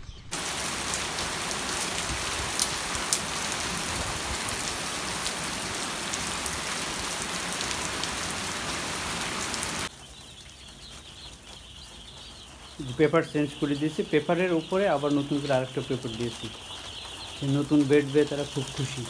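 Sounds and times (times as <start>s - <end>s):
chicks peeping: 0.0s - 19.0s
steady hiss: 0.3s - 9.9s.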